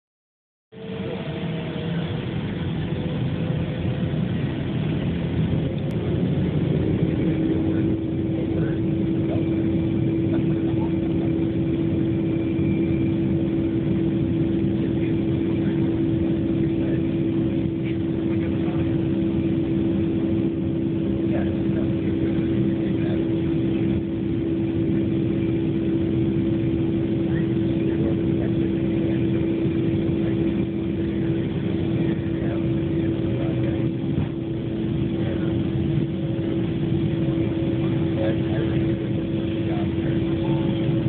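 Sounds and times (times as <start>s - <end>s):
steady jet engine tone: 0.7s - 41.0s
jet engine rumble in cabin: 0.8s - 41.0s.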